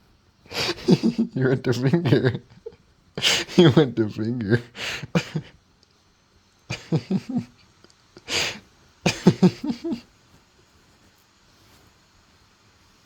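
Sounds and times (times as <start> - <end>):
breathy cough-like burst: 0.5 - 2.6, 3.2 - 5.6, 8.2 - 10.0
man's short vocal sounds: 0.6 - 2.6, 3.2 - 5.5.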